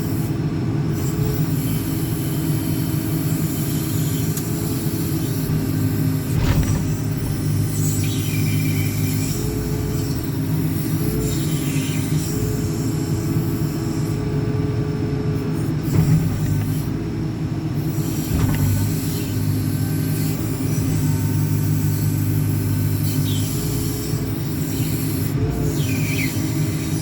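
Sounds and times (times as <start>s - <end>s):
backhoe diesel engine running: 5.6s - 23.0s.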